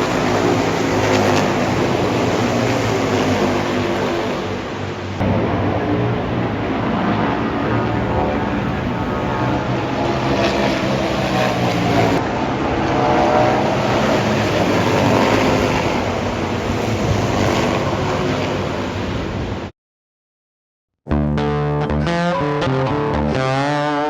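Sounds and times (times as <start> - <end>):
motorcycle engines running: 0.0 - 19.2
steady rush of noise: 0.0 - 19.7.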